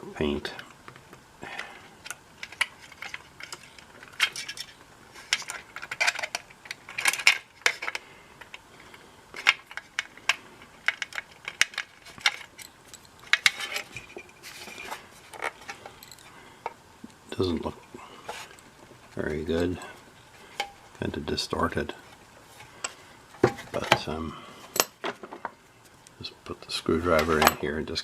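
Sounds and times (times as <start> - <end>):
tools handled against metal chassis: 2.0 - 8.6, 27.1 - 27.6.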